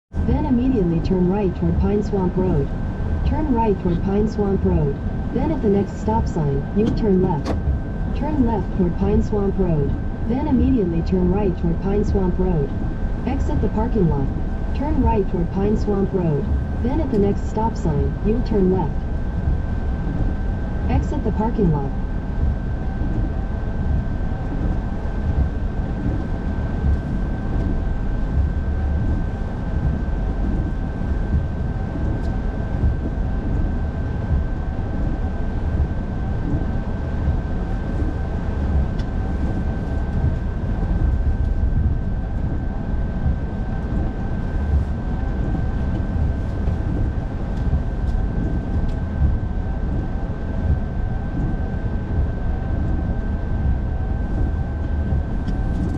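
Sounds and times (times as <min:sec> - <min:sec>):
thin steady whine: 0:00.1 - 0:55.9
engine and road rumble: 0:00.2 - 0:11.2.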